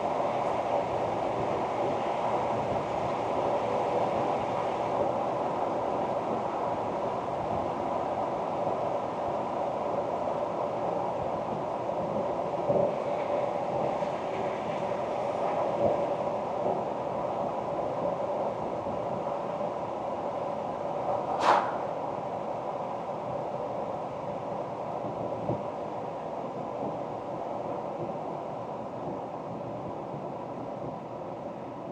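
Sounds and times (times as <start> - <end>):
short sharp loud sound: 21.2 - 22.1.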